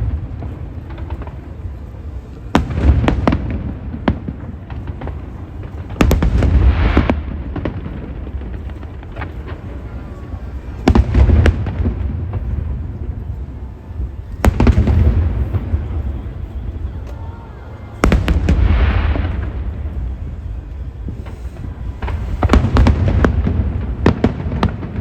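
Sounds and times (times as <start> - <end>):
firework crackling: 0.0 - 25.0.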